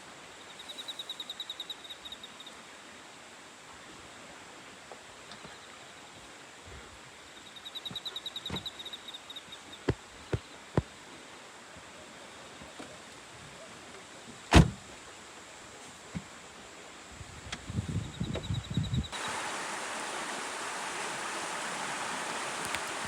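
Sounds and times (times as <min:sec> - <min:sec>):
river rushing: 0:19.1 - 0:23.0.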